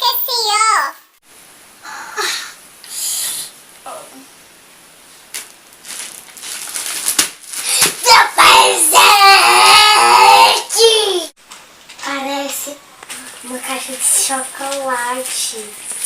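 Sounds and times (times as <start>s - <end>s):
faint rustles and clicks: 5.0s - 8.1s, 11.4s - 16.0s
child's voice drawn-out: 7.8s - 11.3s.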